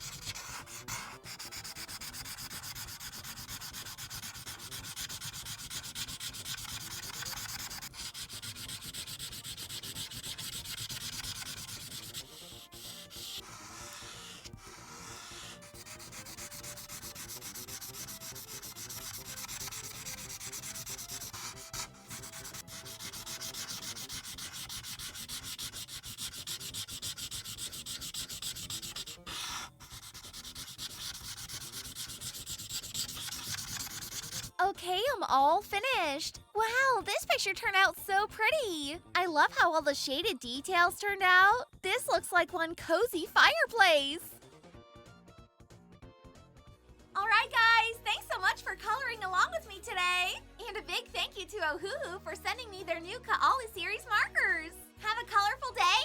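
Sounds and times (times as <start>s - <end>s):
marker rubbing over paper: 0.0s - 38.9s.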